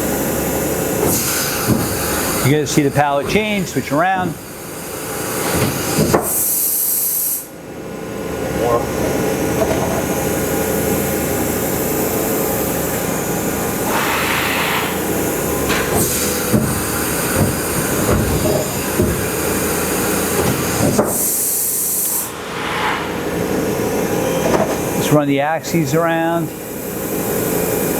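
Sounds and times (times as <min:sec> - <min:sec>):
machine running noise: 0:08.2 - 0:25.2
air hiss: 0:13.2 - 0:18.0, 0:19.3 - 0:25.1
pallets clunking: 0:15.6 - 0:21.3.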